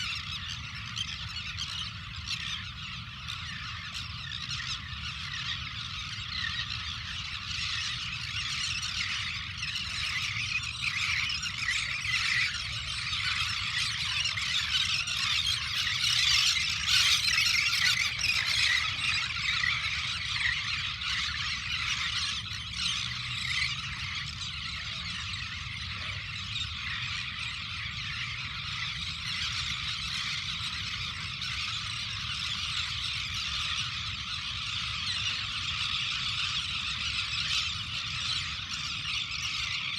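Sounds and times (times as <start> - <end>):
chorus of birds calling: 0.0 - 39.9.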